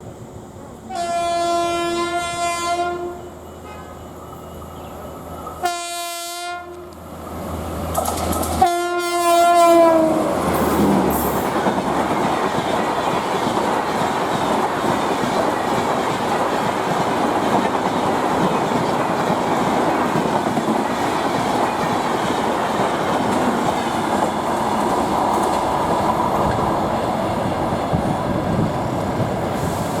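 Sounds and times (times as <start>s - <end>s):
train wheels on rails: 0.0s - 30.0s
locomotive horn blasts: 0.9s - 4.0s, 5.6s - 7.0s, 8.6s - 10.2s.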